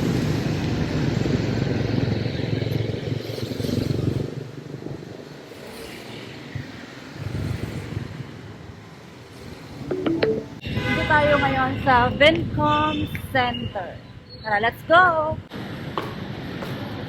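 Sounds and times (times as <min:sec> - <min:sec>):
motorbike engines passing: 0:00.0 - 0:12.3
street traffic: 0:00.0 - 0:17.0.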